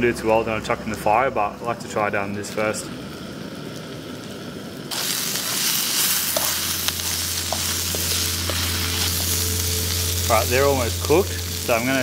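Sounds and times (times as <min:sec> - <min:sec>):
low hum: 0:02.9 - 0:12.0
vegetables sizzling in frying pan: 0:02.9 - 0:12.0.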